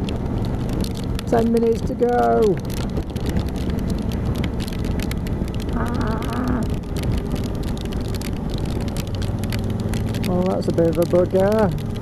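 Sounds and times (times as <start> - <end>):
raindrops ticking on helmet: 0.0 - 12.0
wind and road rumble: 0.0 - 12.0
person exclaiming: 5.8 - 6.7.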